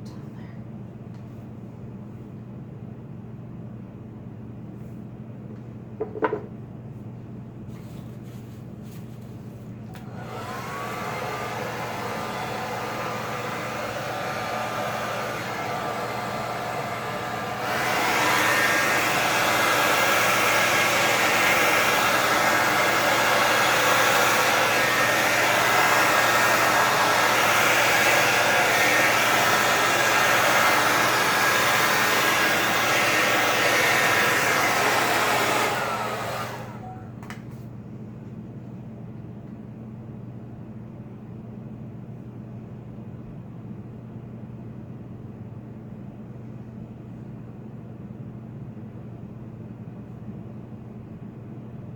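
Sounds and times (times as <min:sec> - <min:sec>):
hair dryer blowing: 0:09.9 - 0:37.4.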